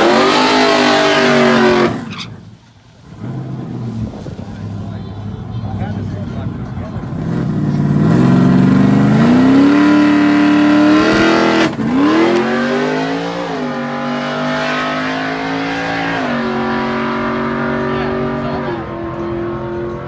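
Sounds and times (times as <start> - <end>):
racing engine accelerating: 0.0 - 2.2, 3.0 - 20.0.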